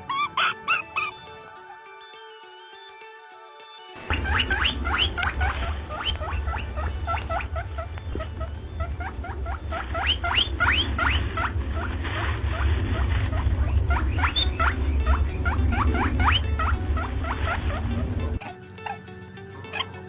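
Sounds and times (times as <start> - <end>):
small animal squeaking: 0.0 - 1.1, 4.0 - 18.1
steady low hum: 4.0 - 18.4.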